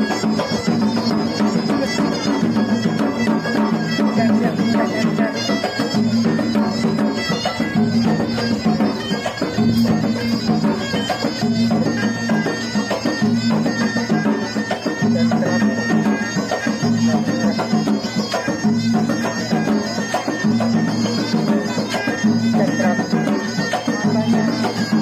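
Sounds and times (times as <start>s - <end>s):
folk wind instrument melody: 0.0s - 25.0s.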